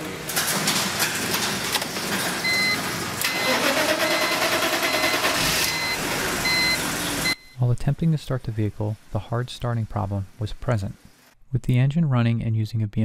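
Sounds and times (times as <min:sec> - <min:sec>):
car engine cranking and starting: 0:02.6 - 0:07.3.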